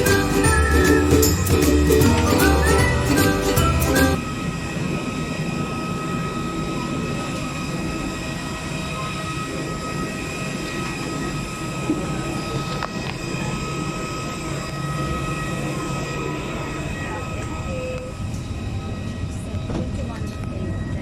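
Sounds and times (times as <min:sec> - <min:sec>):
short music jingle: 0:00.0 - 0:04.2
mechanical hum with high whine: 0:00.0 - 0:21.0.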